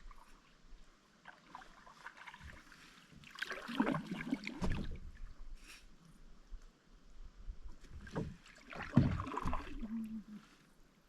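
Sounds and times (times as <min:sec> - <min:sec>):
paddle splashing in water: 0:01.2 - 0:05.2, 0:07.8 - 0:10.6.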